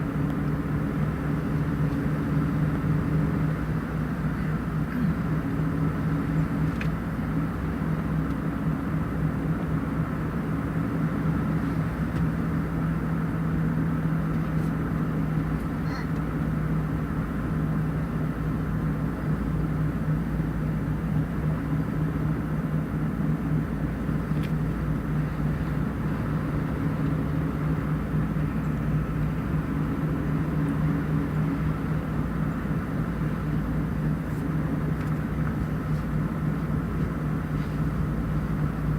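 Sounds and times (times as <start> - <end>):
road rumble: 0.0 - 38.9
vehicle engine hum: 0.0 - 38.9.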